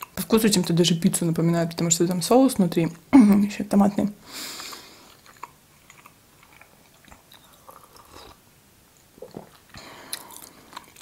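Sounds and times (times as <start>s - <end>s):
quiet chewing: 4.4s - 8.4s, 9.0s - 11.0s.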